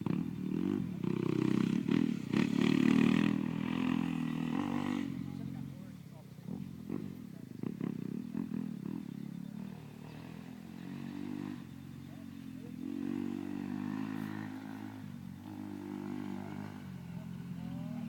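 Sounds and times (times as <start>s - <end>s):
motocross motorcycle engines: 0.0s - 18.0s.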